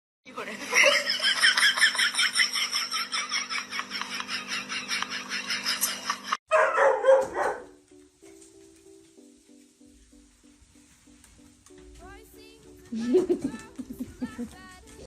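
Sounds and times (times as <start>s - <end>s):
dog barking rapidly: 6.5s - 7.8s
faint music: 6.5s - 15.0s.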